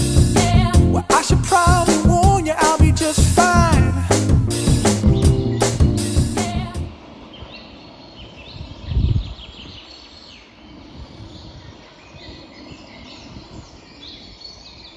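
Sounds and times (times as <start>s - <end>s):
steady background hiss: 4.5s - 14.9s
songbirds chirping and trilling: 7.0s - 14.9s.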